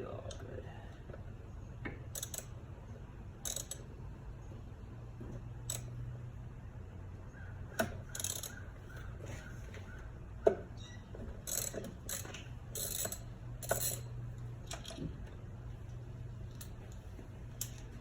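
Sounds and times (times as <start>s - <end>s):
low steady hum: 0.0s - 18.0s
ratchet metallic clicks and taps: 1.8s - 2.6s, 3.4s - 3.9s, 5.6s - 6.0s, 7.7s - 8.7s, 11.4s - 15.0s, 16.5s - 18.0s.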